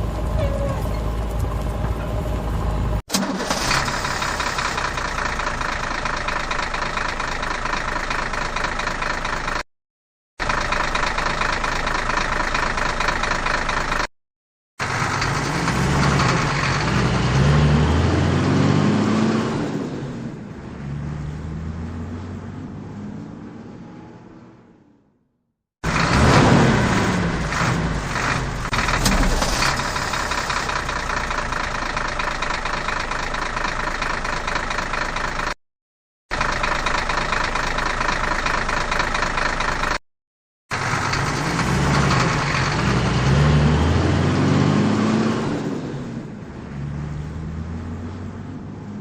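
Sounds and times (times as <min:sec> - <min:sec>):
vehicle engine running: 0:00.0 - 0:09.6, 0:10.4 - 0:14.1, 0:14.8 - 0:19.0, 0:25.8 - 0:35.6, 0:36.3 - 0:40.0, 0:40.7 - 0:44.8.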